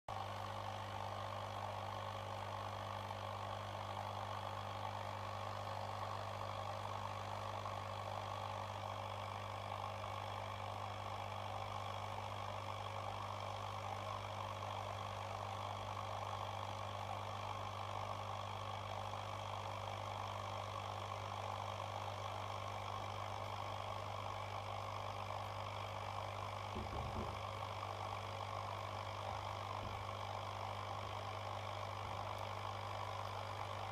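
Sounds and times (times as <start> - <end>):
electric appliance humming: 0.1 - 33.9
low bump: 26.7 - 27.5.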